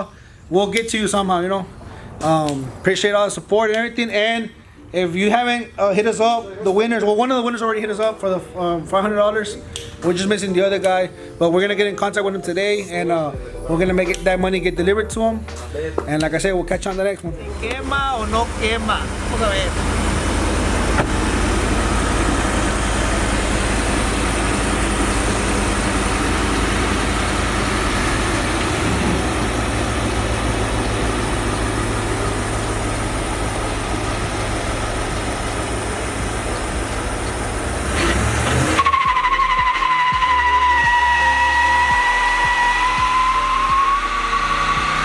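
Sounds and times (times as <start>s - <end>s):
truck engine at high revs: 17.4s - 45.0s
high-pitched tyre squeal: 37.8s - 45.0s.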